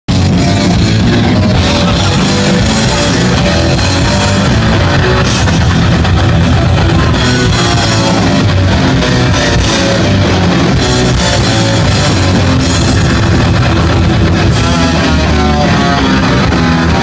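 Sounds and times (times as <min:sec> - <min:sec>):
electric guitar notes: 0:00.1 - 0:17.0
heavy metal band playing: 0:00.1 - 0:17.0
pounding drum kit: 0:00.1 - 0:17.0.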